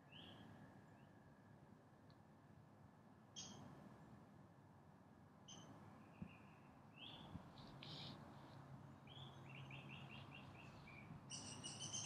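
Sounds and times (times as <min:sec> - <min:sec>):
songbird calls: 0:05.5 - 0:08.2, 0:09.1 - 0:12.0.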